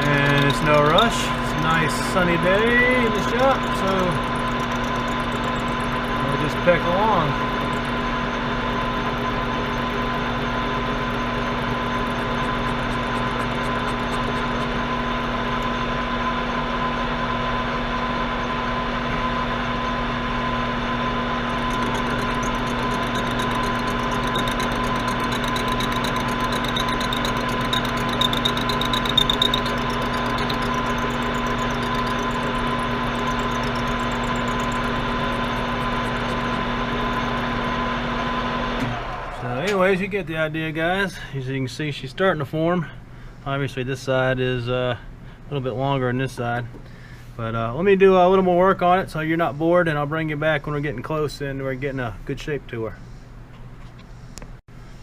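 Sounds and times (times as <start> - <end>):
metal shaper motor humming: 0.0 - 41.0.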